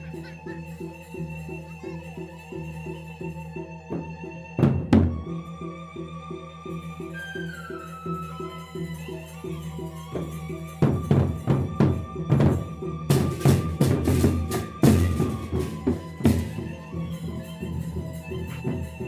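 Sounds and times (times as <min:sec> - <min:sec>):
bamboo flute melody: 0:00.0 - 0:19.0
big drums and cymbals: 0:10.1 - 0:19.0.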